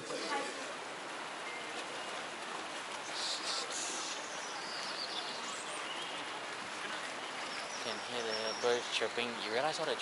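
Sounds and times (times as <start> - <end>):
outdoor background hiss: 0.0 - 10.0
small birds chirping: 3.0 - 10.0.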